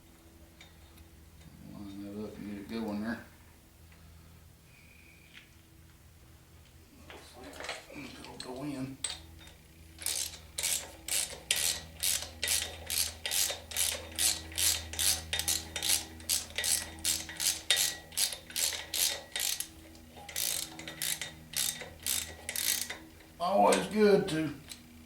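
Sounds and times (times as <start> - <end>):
hand ratchet clicking: 8.3 - 23.9.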